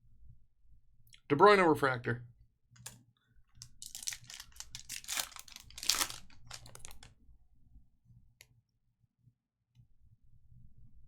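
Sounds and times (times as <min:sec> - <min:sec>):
wrapper crinkling and tearing: 0:03.6 - 0:07.1.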